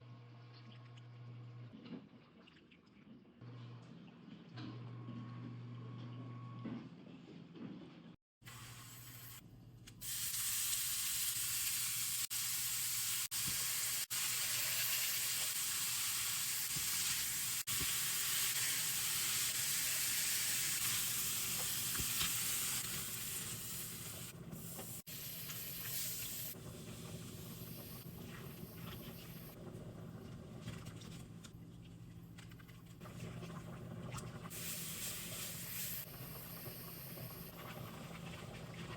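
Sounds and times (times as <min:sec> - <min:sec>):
food sizzling in a pan: 0:10.0 - 0:29.6, 0:34.5 - 0:37.6.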